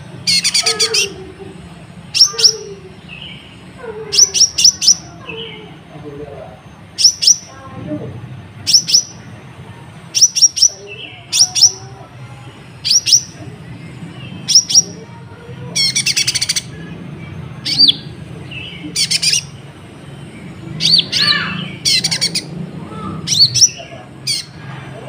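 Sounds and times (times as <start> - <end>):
rapid rattling bird trill: 0.0 - 5.6, 6.8 - 7.6, 8.6 - 9.3, 10.1 - 12.0, 12.6 - 15.0, 15.7 - 24.6
sharp high bird chirps: 4.2 - 5.4, 6.9 - 7.5, 8.6 - 9.3, 10.2 - 11.8, 12.8 - 13.4, 14.3 - 15.0, 15.8 - 16.9, 17.5 - 22.5.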